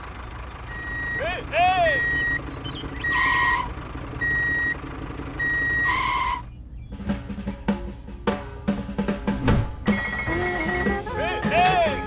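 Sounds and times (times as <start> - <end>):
electronic reversing beeps: 2.0 - 3.2, 4.2 - 4.8, 5.4 - 6.0, 9.8 - 11.0
music with steady drum beat: 7.0 - 12.0.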